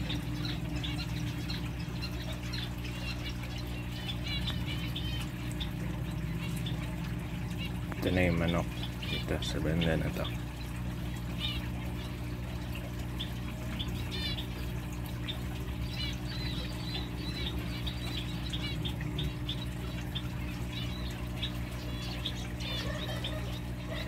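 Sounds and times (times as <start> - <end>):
birds chirping: 0.0 - 24.0
steady low hum: 0.0 - 24.0.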